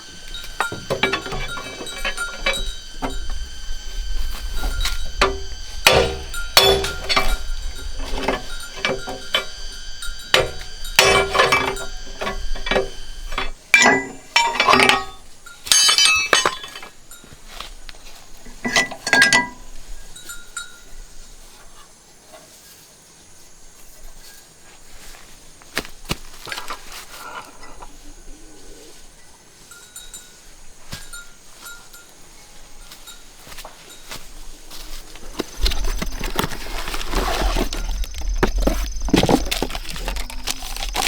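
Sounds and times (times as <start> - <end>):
metal parts clinking and knocking: 0.0 - 17.1, 18.4 - 19.8, 35.3 - 41.0.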